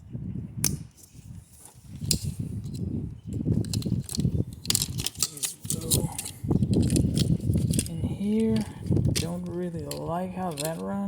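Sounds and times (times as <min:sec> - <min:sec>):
plastic connectors clicking and rattling: 0:03.6 - 0:11.0.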